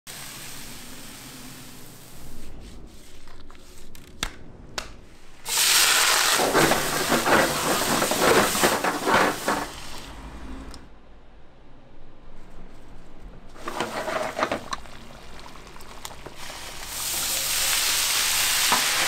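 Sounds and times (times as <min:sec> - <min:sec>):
loud crackling sizzle: 0:00.1 - 0:02.6, 0:05.4 - 0:10.4, 0:13.6 - 0:19.0.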